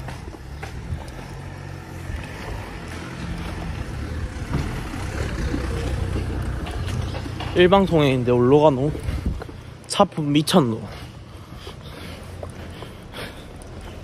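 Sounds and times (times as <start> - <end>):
car engine running: 0.0 - 9.7.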